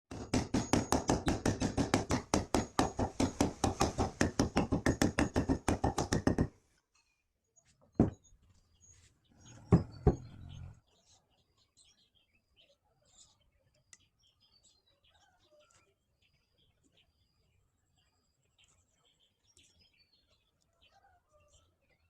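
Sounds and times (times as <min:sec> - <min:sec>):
sharp knocks on wood: 0:00.1 - 0:06.6, 0:08.0 - 0:08.2, 0:09.7 - 0:10.4.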